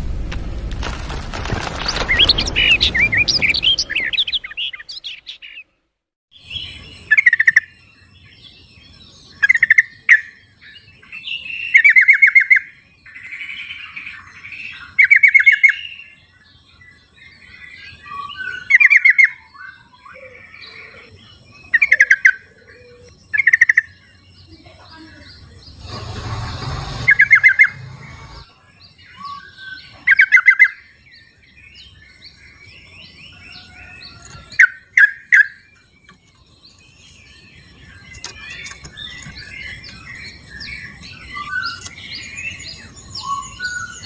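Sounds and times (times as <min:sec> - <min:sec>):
loud low rumble: 0:00.0 - 0:04.4, 0:25.8 - 0:28.5
birds chattering calls: 0:01.5 - 0:05.8, 0:06.4 - 0:44.0
bird warbling song: 0:01.6 - 0:05.8, 0:06.4 - 0:44.0.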